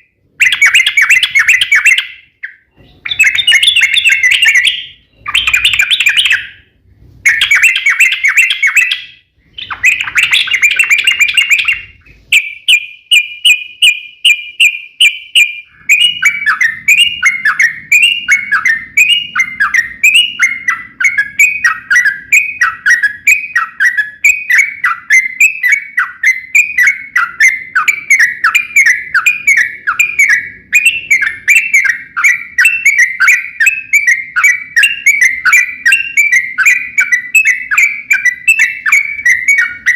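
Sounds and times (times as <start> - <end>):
bird repeated down-slurred notes: 0.0 - 39.9
bird singing chattering warble: 0.0 - 39.9.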